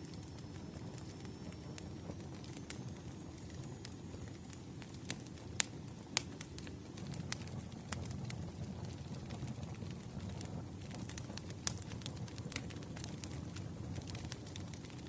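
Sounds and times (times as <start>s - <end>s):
campfire crackles and pops: 0.0s - 15.0s
low rumble of flames: 0.0s - 15.0s.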